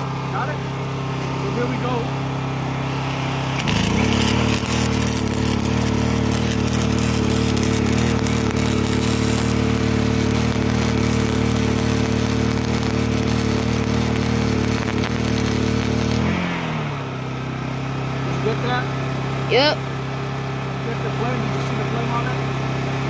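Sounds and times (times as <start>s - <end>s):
generator running: 0.0s - 23.0s
welder arc crackling: 1.5s - 17.0s.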